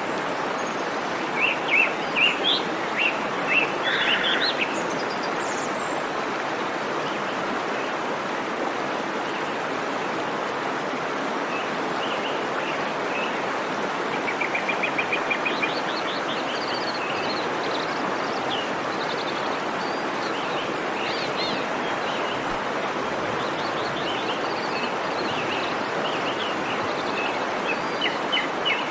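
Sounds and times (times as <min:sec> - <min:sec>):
waterfall rushing: 0:00.0 - 0:28.9
birds chirping: 0:14.2 - 0:28.9.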